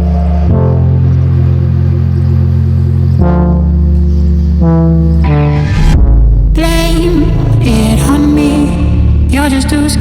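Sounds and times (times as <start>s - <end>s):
sustained bass synth: 0.0s - 10.0s
electronic pop music: 3.2s - 10.0s.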